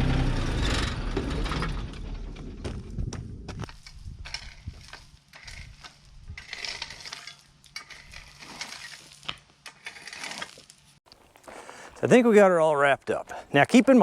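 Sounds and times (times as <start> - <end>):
footsteps crunching on gravel: 10.4 - 12.1.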